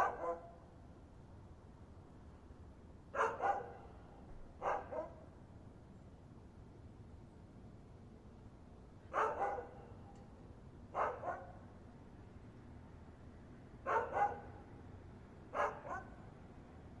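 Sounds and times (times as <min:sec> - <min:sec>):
dog barking: 0:00.0 - 0:00.6, 0:03.2 - 0:04.0, 0:04.6 - 0:05.2, 0:09.1 - 0:10.1, 0:11.0 - 0:11.6, 0:13.8 - 0:14.6, 0:15.5 - 0:16.2.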